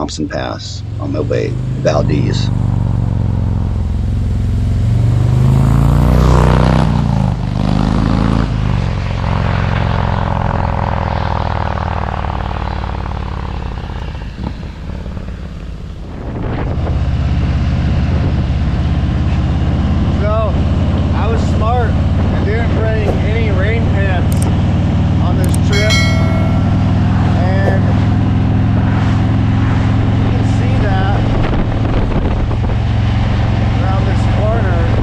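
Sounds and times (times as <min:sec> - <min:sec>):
motorcycle engine running: 0:18.1 - 0:35.0.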